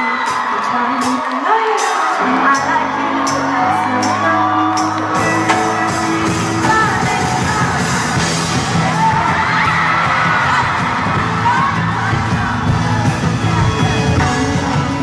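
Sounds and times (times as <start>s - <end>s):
person singing: 0.0s - 9.3s, 11.4s - 15.0s
live pop band playing: 0.0s - 15.0s
audience whooping: 8.7s - 14.0s.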